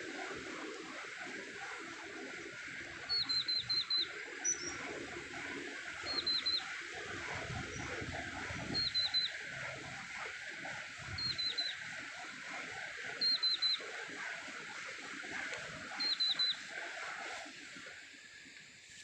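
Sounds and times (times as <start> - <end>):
steady hiss: 0.0 - 19.0
bird chirping: 3.1 - 4.9, 6.1 - 6.7, 8.7 - 9.4, 11.2 - 11.8, 13.2 - 13.9, 16.0 - 16.7.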